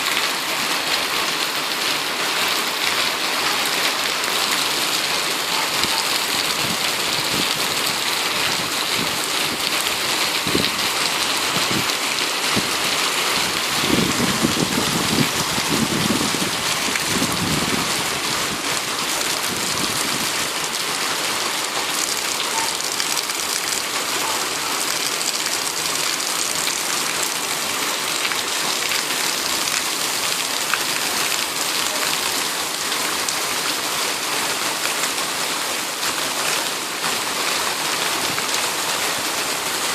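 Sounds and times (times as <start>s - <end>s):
heavy rain pouring: 0.0s - 39.9s
thunder rumbling: 5.8s - 20.5s.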